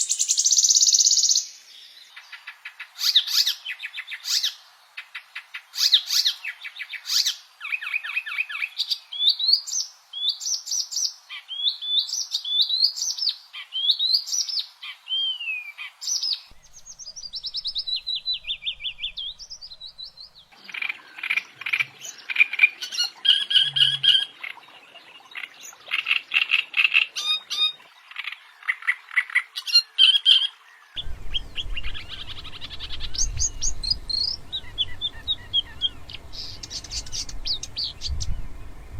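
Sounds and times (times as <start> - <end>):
songbirds chirping and trilling: 0.0 - 38.9
low rumble: 31.0 - 38.9.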